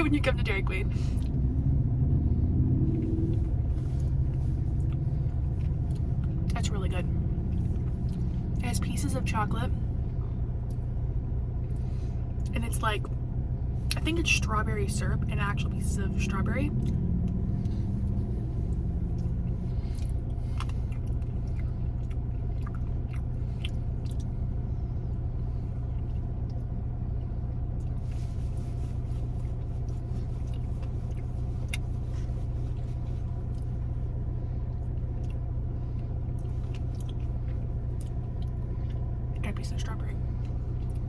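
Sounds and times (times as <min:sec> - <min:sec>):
car engine idling: 0:00.0 - 0:41.0
person chewing: 0:18.7 - 0:24.3, 0:29.2 - 0:33.8, 0:36.4 - 0:39.0.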